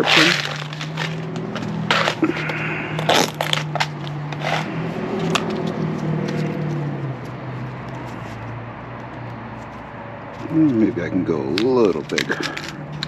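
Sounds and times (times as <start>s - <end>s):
small metal parts clicking: 11.5s - 13.0s.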